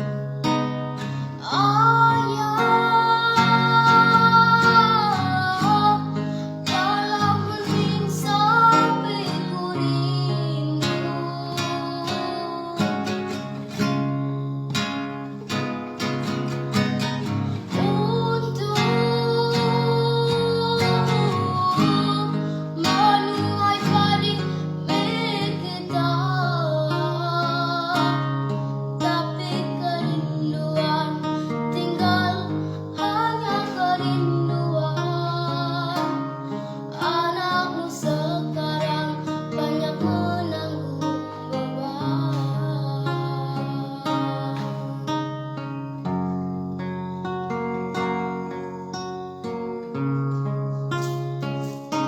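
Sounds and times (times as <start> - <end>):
acoustic guitar playing: 0.0 - 52.0
woman singing: 0.4 - 14.2, 17.5 - 45.8.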